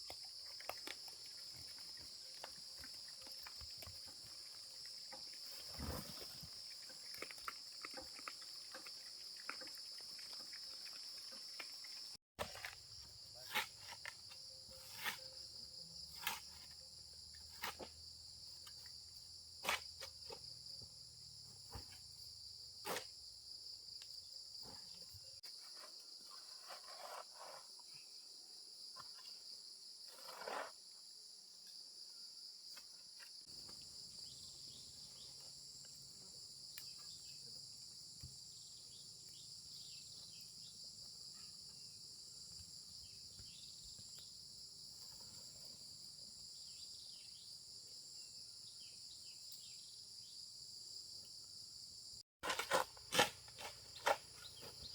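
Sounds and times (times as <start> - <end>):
insects chirring: 0.0 - 54.9
knocks and scrapes: 2.4 - 8.8, 12.4 - 16.8, 17.4 - 18.8, 24.6 - 28.0, 30.0 - 30.8, 52.4 - 54.9.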